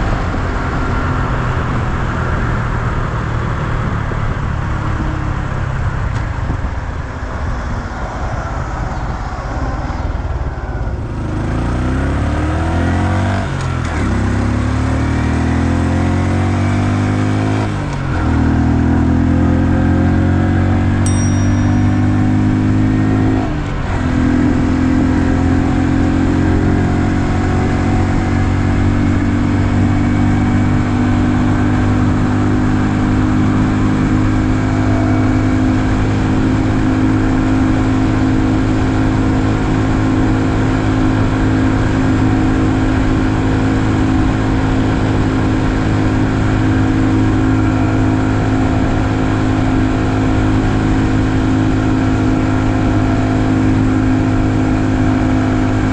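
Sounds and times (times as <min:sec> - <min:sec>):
motorcycle engine running: 0:20.8 - 0:55.9.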